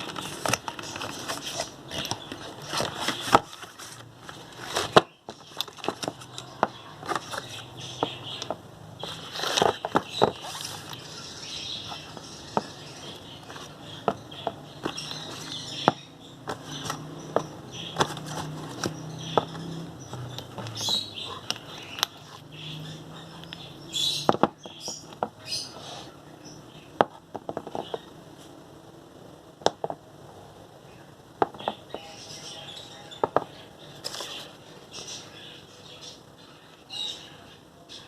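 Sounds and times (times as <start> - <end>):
packaging rustling: 0.0 - 7.6, 9.0 - 11.0, 16.4 - 22.4
objects tapping and clicking: 0.0 - 11.1, 11.9 - 22.5, 24.2 - 25.5, 27.0 - 28.1, 31.4 - 32.1, 33.2 - 34.4.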